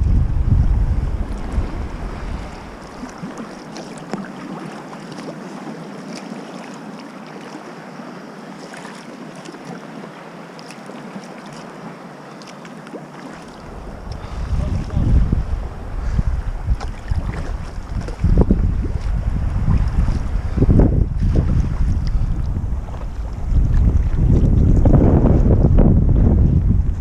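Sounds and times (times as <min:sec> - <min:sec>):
wind buffeting microphone: 0:00.0 - 0:04.3, 0:13.5 - 0:27.0
water lapping around kayak: 0:00.0 - 0:27.0.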